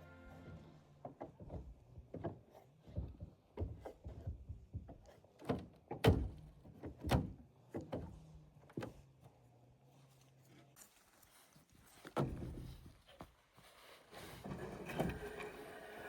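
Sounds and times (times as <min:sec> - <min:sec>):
irregular knocks and thuds: 0:01.0 - 0:08.2.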